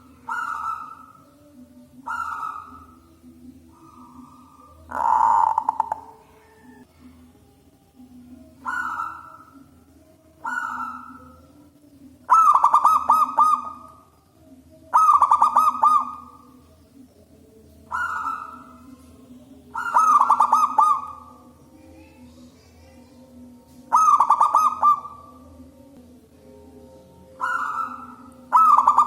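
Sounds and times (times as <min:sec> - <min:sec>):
dove cooing with trills: 0:00.0 - 0:06.9, 0:08.4 - 0:16.8, 0:17.8 - 0:25.9, 0:27.1 - 0:29.0.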